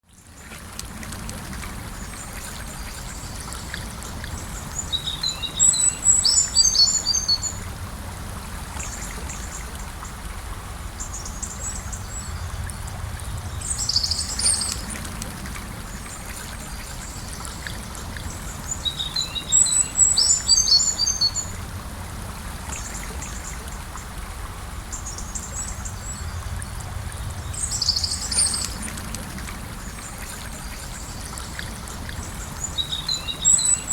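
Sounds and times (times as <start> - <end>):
river flowing: 0.1 - 33.9
small bird singing: 4.8 - 7.6, 13.6 - 14.9, 18.7 - 21.5, 27.5 - 28.8, 32.6 - 33.9.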